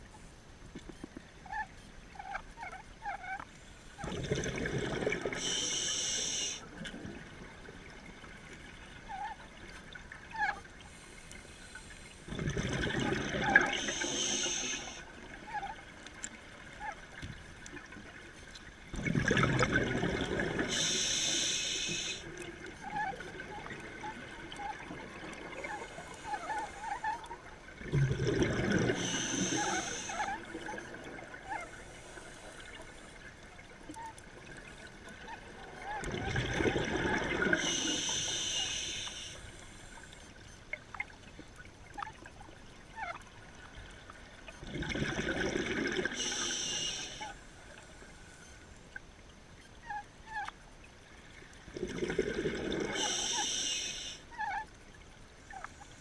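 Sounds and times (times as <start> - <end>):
diver breathing through regulator: 5.3 - 6.7, 13.5 - 15.1, 20.6 - 22.3, 28.7 - 30.4, 37.4 - 40.0, 46.0 - 47.4, 52.8 - 54.3.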